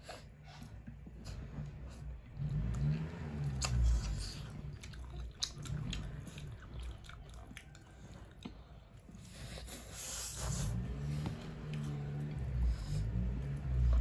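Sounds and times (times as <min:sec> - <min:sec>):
person chewing food: 0:00.8 - 0:12.6.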